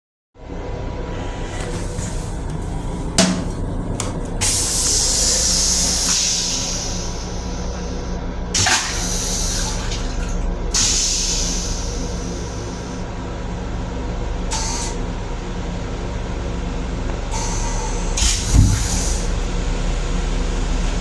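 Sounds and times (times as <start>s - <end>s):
low rumble of moving train: 0.4s - 8.6s, 9.2s - 21.0s
hissing spray from restroom fixture: 4.4s - 7.9s, 10.7s - 12.8s.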